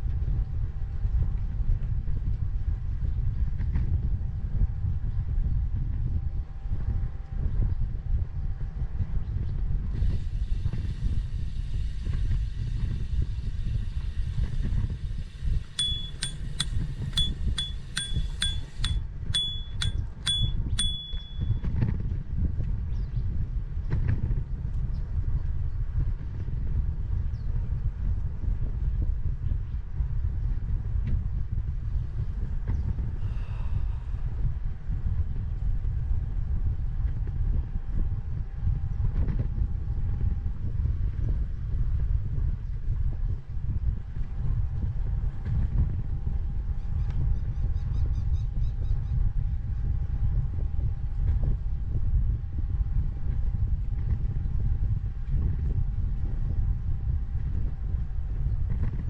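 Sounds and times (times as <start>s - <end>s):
bicycle road rumble: 0.0s - 59.0s
wind on microphone: 0.0s - 59.0s
faint steady high tone: 15.8s - 21.7s
sharp ringing metallic ticks: 15.8s - 21.7s.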